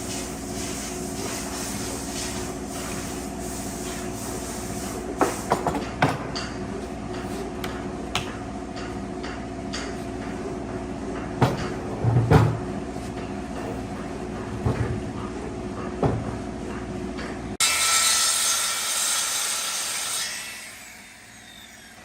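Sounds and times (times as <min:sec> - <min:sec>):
steady mechanical hum: 0:00.0 - 0:22.0
sharp knocks and clatters: 0:05.2 - 0:17.4.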